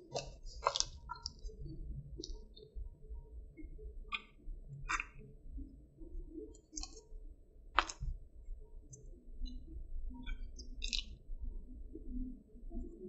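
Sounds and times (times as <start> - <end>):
food crunching while chewing: 0.0 - 1.4, 7.8 - 8.1, 10.6 - 11.2.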